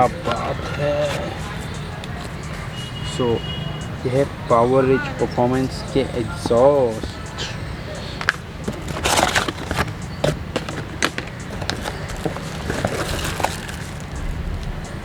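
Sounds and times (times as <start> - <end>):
packaging crinkling and rustling: 8.2 - 14.2
low rumble: 14.2 - 15.0.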